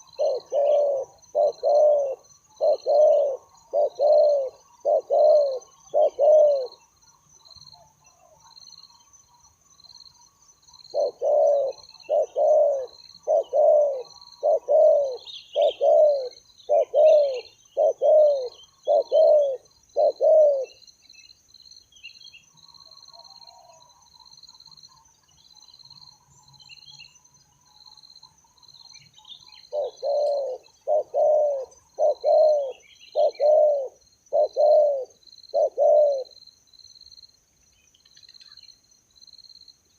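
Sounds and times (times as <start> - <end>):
doves cooing: 0.0 - 6.9, 10.9 - 20.8, 29.6 - 36.4.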